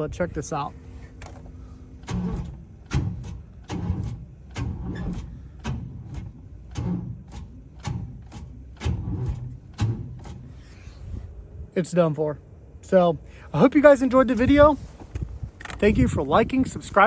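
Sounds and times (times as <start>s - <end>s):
engine cranking with heavy thuds: 1.1s - 11.3s.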